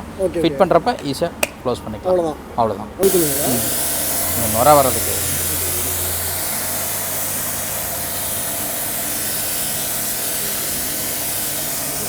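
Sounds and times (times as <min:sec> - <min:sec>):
pressure washer spray hissing: 0:03.0 - 0:12.0.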